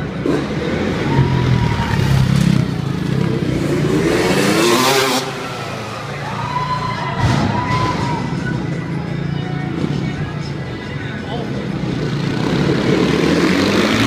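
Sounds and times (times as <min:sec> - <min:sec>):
dirt bike engine revving: 0:00.0 - 0:06.3, 0:12.0 - 0:14.0.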